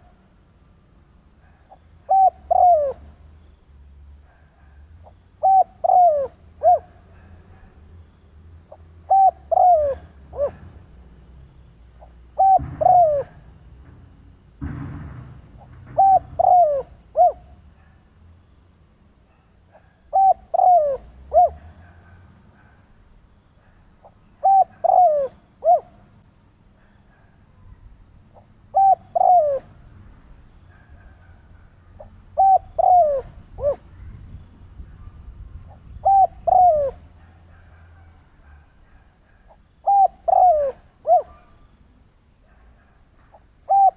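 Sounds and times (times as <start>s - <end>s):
dove cooing: 1.4s - 3.1s, 4.2s - 7.7s, 8.7s - 11.0s, 12.0s - 13.7s, 15.6s - 18.0s, 19.7s - 22.8s, 24.4s - 26.0s, 28.4s - 29.8s, 30.7s - 34.2s, 35.7s - 41.5s, 42.5s - 43.9s.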